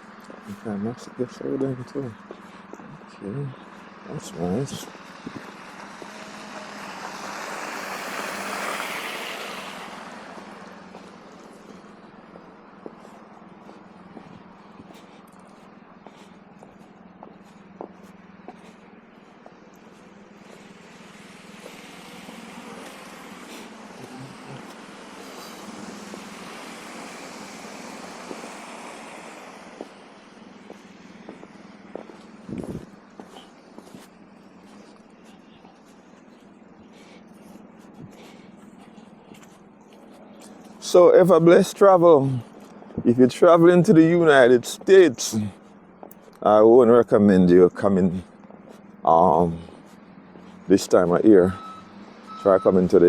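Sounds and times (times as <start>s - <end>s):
vehicle passing on snowy road: 0.0s - 53.0s
tyres hissing on wet snow: 4.4s - 11.8s, 20.6s - 32.1s.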